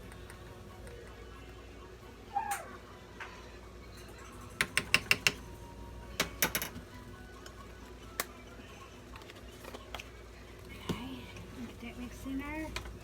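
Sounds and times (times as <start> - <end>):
utensils tapping cooking pot: 4.5 - 5.5.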